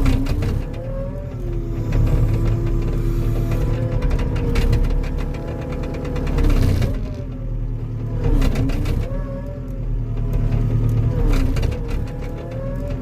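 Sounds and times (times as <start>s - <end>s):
diesel engine under load: 0.0s - 13.0s
rattling: 0.0s - 13.0s.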